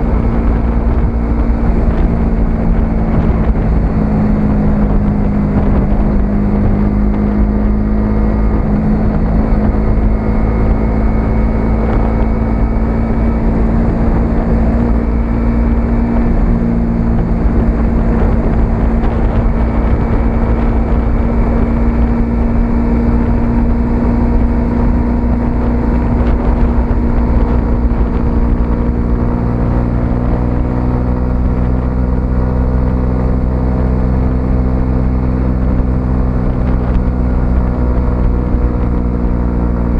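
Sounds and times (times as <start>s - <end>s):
motorcycle engine cruising: 0.0s - 39.9s
wind rumble on microphone: 0.0s - 39.9s.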